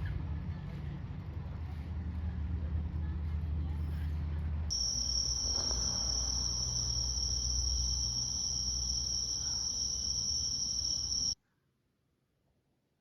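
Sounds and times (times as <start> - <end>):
insect chorus: 4.7 - 11.4.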